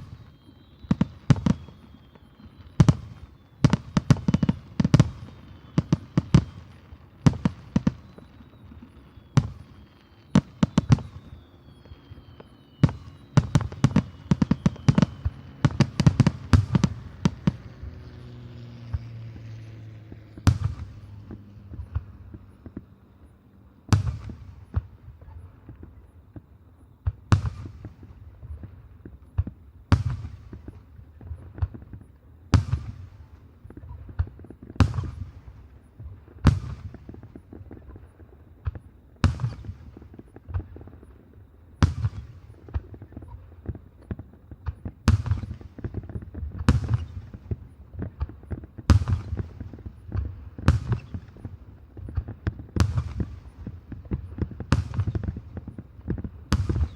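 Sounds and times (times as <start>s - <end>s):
rolling echo: 0.0s - 56.9s
firework shells bursting: 44.7s - 56.9s.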